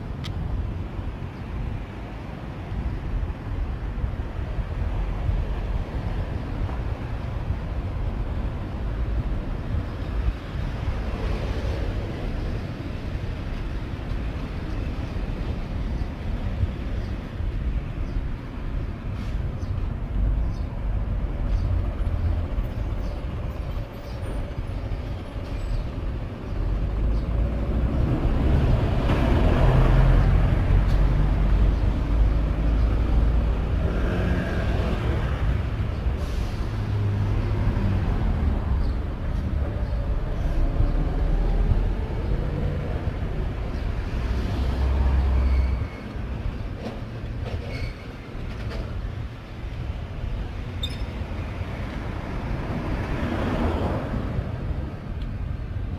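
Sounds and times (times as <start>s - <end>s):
moving vehicle rumble: 0.0s - 55.9s.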